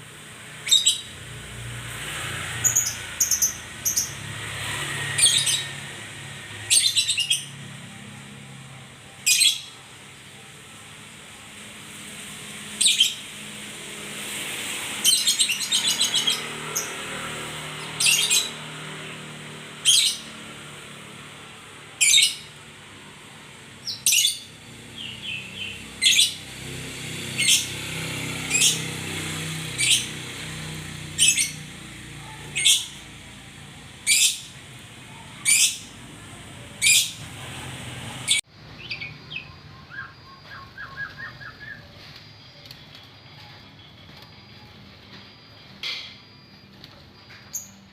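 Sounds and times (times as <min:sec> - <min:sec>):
songbird calling: 0:38.3 - 0:42.8
quieter birdsong: 0:38.3 - 0:46.1.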